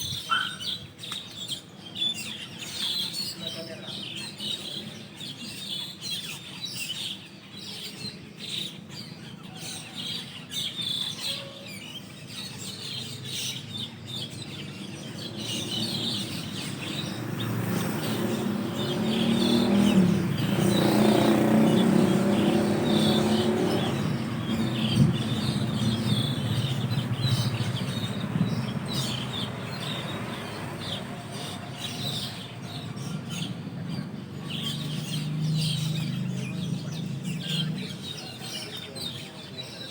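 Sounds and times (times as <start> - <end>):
starlings chirping: 0.0 - 39.9
vehicle passing: 15.2 - 38.1.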